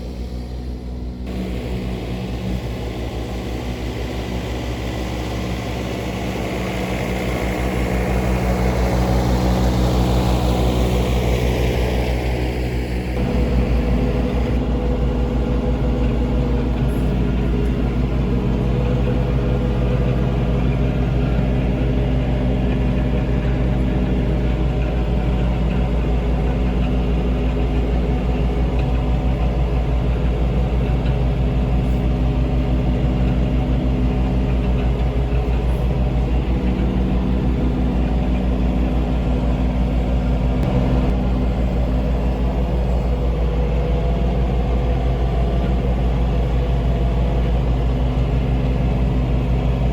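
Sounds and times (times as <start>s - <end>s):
high whine falling in pitch: 0.1s - 15.8s, 40.3s - 42.0s
tractor mowing grass: 0.1s - 41.6s.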